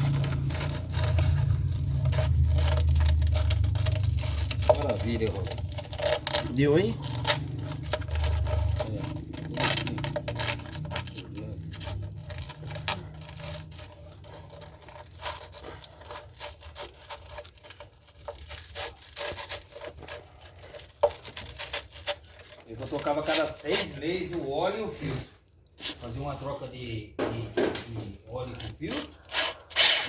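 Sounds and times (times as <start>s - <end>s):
low motor hum: 0.0s - 14.2s
sandpaper scraping metal: 0.0s - 25.0s, 28.4s - 30.0s.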